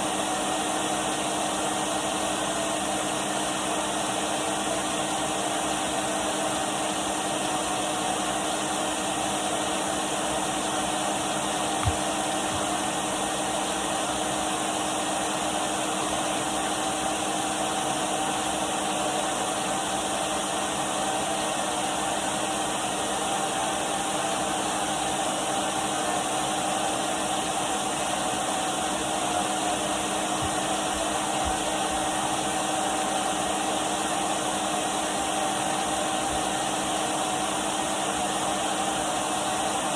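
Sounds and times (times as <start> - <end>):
vacuum cleaner running: 0.0 - 39.9
small knock: 11.8 - 12.7.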